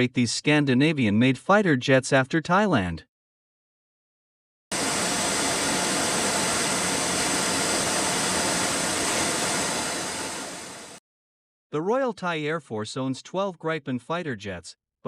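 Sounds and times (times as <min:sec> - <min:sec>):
jet engine roar: 0:04.7 - 0:11.0.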